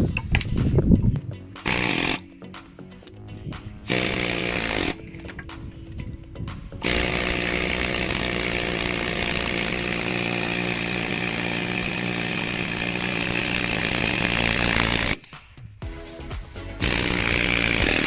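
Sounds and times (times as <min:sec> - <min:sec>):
handheld power tool running: 0:06.9 - 0:15.2.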